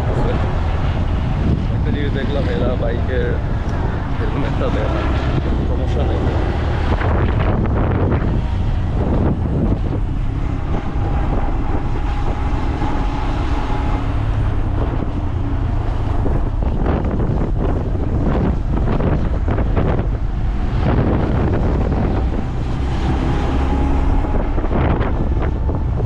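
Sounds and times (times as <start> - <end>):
wind on microphone: 0.0 - 26.0
motorcycle engine running: 7.2 - 26.0.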